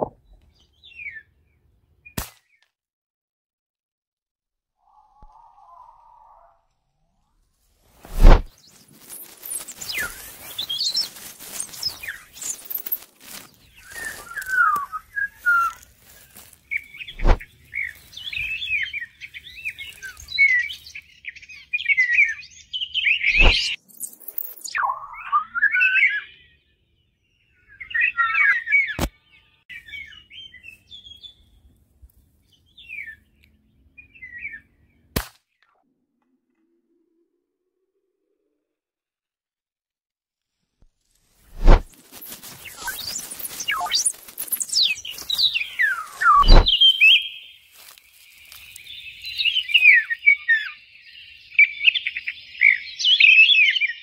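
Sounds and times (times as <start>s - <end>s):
songbird twittering: 8.6s - 31.6s, 42.2s - 54.0s.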